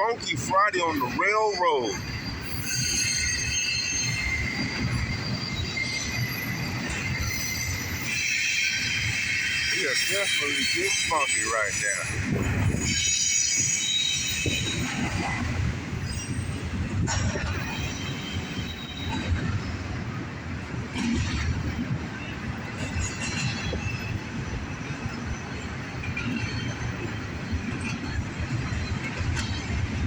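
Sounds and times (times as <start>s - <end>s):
train wheels rumbling on rail: 0.0s - 30.0s
high-pitched wheel squeal: 1.7s - 16.7s.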